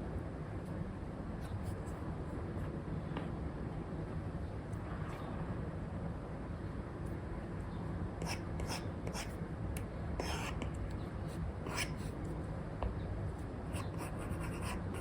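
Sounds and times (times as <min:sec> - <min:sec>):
stylus scratching on screen: 0:10.2 - 0:10.8, 0:11.7 - 0:12.2, 0:13.8 - 0:15.0.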